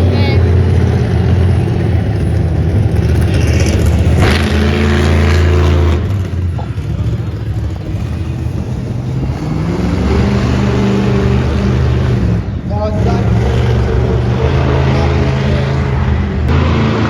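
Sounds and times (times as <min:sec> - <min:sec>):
truck engine revving: 0:00.0 - 0:17.0.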